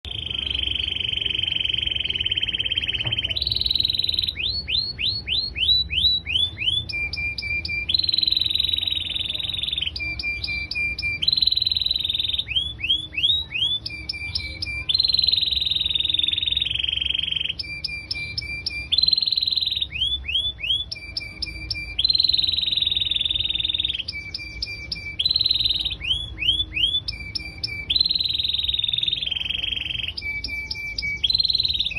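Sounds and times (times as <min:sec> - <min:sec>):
canary singing: 0:00.0 - 0:31.9.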